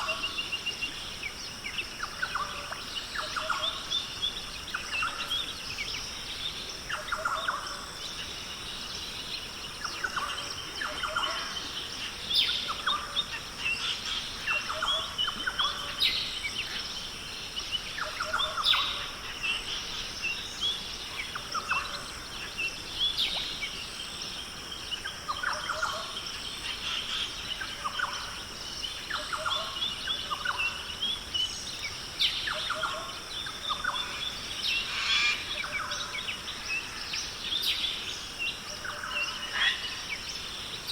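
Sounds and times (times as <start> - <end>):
birds calling: 24.9 - 40.9.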